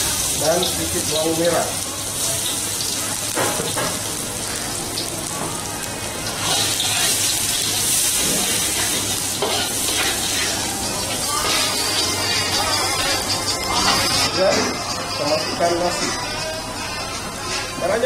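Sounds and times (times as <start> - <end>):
garlic sizzling in hot oil: 0.0 - 18.0
metal spatula scraping pan: 6.4 - 18.0.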